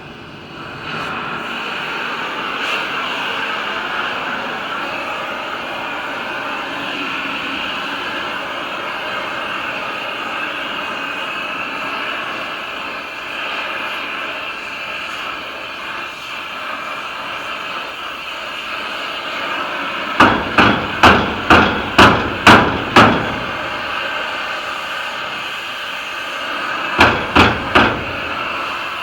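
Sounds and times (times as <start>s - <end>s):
steady background noise: 0.0s - 29.0s
sharp ringing knocks: 20.2s - 23.8s, 27.0s - 28.4s.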